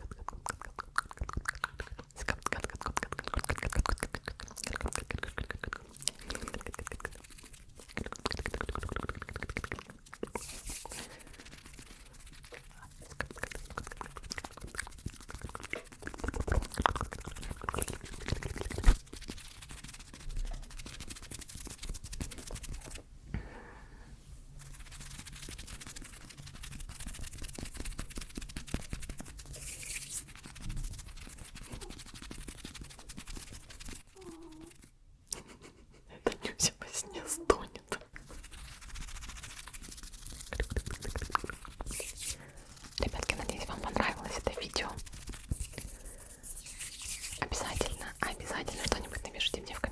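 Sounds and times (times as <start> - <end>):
crackles rubbing and scratching: 0.6 - 23.0, 24.6 - 34.9, 38.2 - 49.9.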